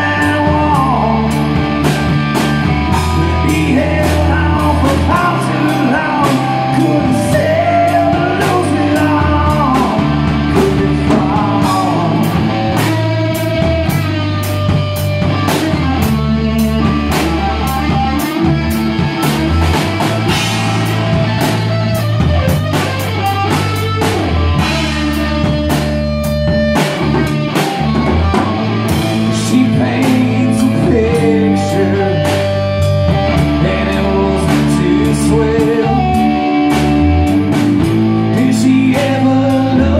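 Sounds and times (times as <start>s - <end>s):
person singing: 0.0s - 2.0s, 2.9s - 13.1s, 28.0s - 39.9s
rock band playing: 0.0s - 39.9s.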